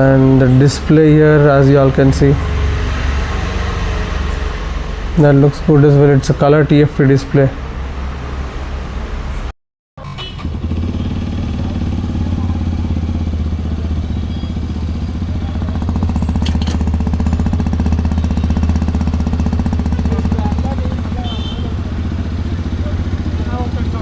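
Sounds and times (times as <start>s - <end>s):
motorcycle engine running: 10.0s - 24.0s.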